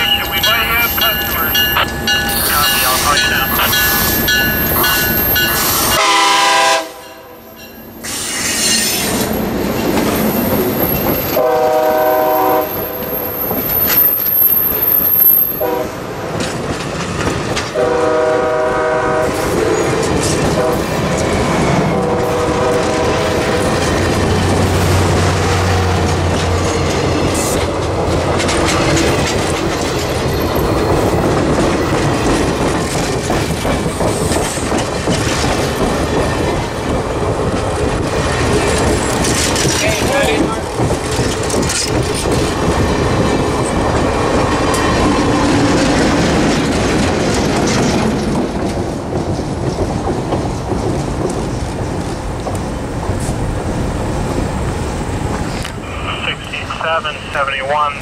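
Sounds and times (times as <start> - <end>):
diesel locomotive passing: 0.0 - 58.0
air horn blasts: 6.0 - 7.3, 11.4 - 12.7, 15.6 - 15.9, 17.8 - 19.4
wheels clacking over rail joints: 16.2 - 17.9, 19.7 - 55.8.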